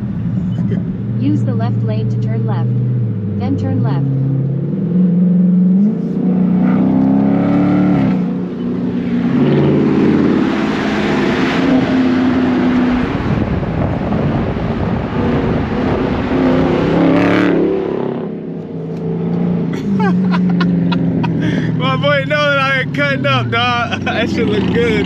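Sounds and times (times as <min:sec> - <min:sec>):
car engine accelerating hard: 0:00.0 - 0:25.0.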